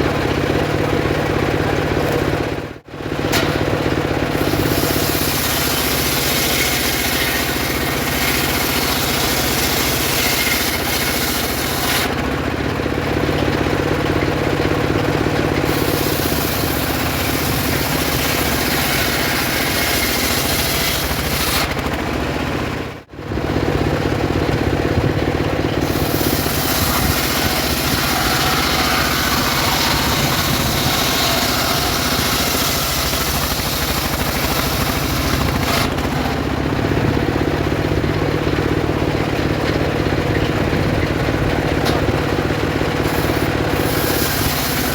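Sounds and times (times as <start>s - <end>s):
circular saw cutting wood: 3.3s - 12.3s, 15.6s - 22.2s, 25.8s - 39.0s, 41.2s - 44.9s.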